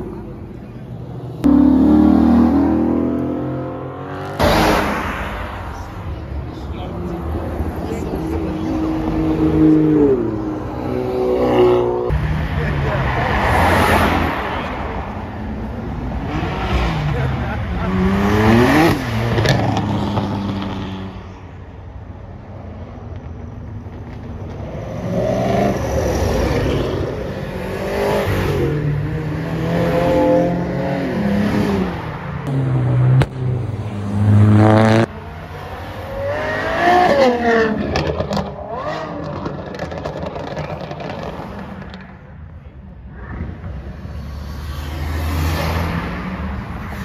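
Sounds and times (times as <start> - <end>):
cars accelerating hard: 1.3 - 21.3, 24.4 - 42.2.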